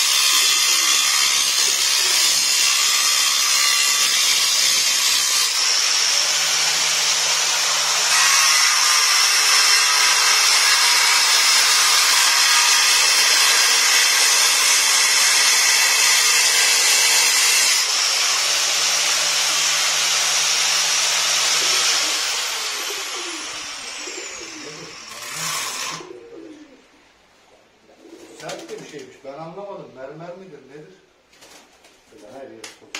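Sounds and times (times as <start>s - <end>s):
power tool cutting stone: 0.0s - 26.1s.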